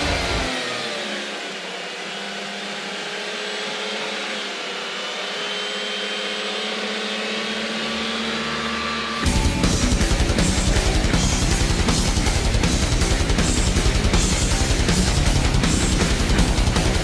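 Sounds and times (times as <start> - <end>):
motor-like whirring: 0.0 - 9.3.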